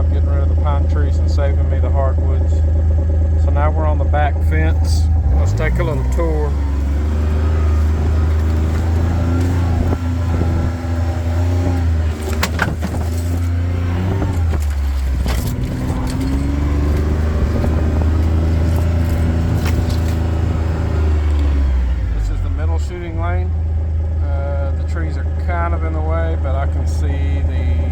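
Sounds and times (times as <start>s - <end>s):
engine and road rumble: 0.0s - 27.9s
knocks and rattles from bumps: 4.8s - 22.4s.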